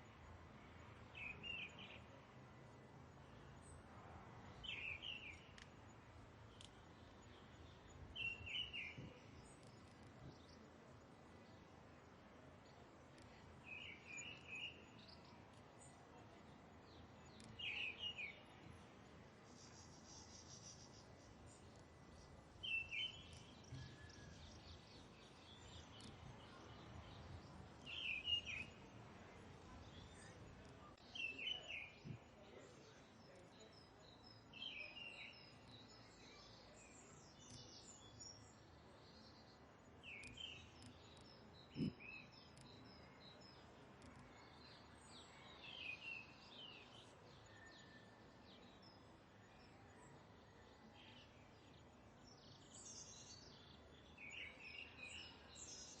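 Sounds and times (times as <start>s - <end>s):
low outdoor background: 0.0s - 56.0s
birds chirping: 6.5s - 10.7s, 29.6s - 47.7s.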